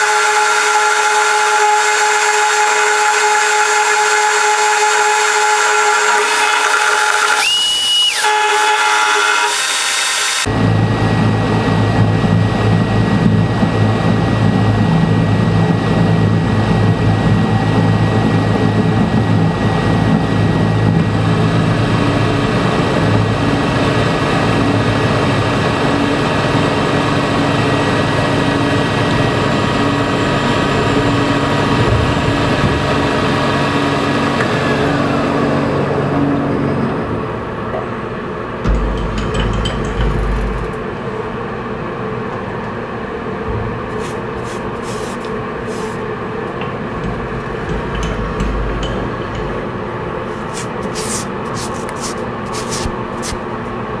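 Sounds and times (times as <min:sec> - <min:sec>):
electric machine tool whining: 0:05.7 - 0:10.5.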